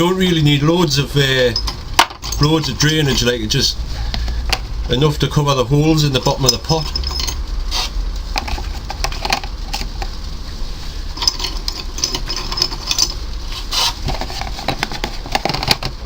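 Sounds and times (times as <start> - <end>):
pot shards clinking: 1.4 - 3.2, 6.2 - 7.5, 11.1 - 15.8.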